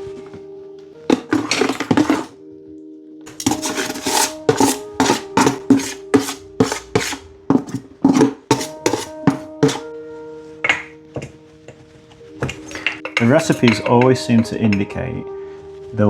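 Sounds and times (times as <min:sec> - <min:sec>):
muddler tamping cabbage in jar: 0:01.1 - 0:02.3, 0:03.3 - 0:09.9.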